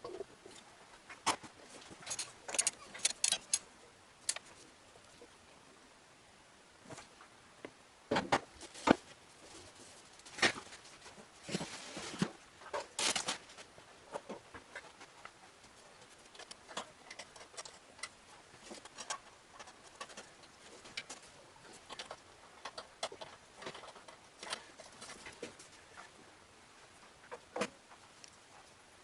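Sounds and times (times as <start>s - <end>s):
metal engine parts clinking: 2.0s - 3.6s.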